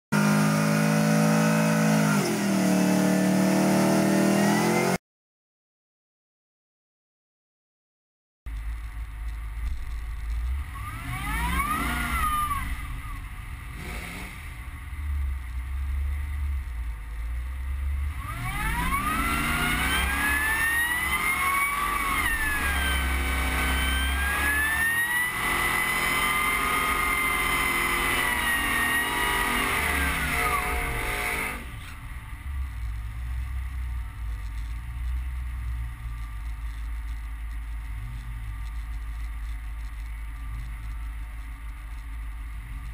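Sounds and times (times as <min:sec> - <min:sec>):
truck engine revving: 0:00.1 - 0:05.0, 0:09.6 - 0:37.2
supercharger whine: 0:00.2 - 0:05.0, 0:08.5 - 0:42.9.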